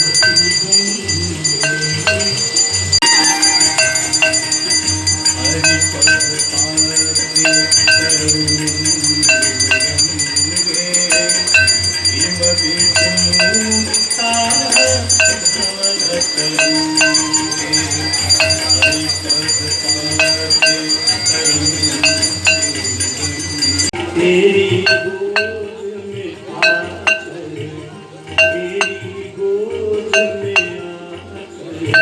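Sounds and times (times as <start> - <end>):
low sustained accompaniment: 0.0 - 23.9
ringing metal strikes: 0.0 - 24.0, 24.7 - 25.8, 26.5 - 27.5, 28.3 - 29.3, 30.2 - 31.0.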